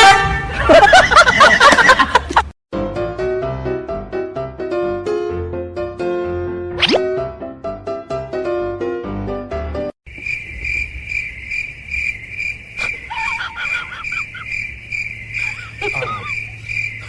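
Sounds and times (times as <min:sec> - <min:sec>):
crickets chirping: 0:10.1 - 0:17.0.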